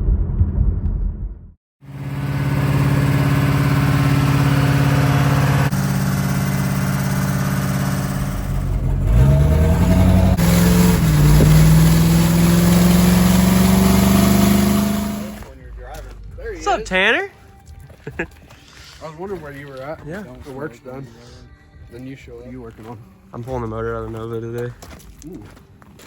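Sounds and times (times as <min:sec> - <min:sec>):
vehicle engine accelerating: 0:01.8 - 0:16.5.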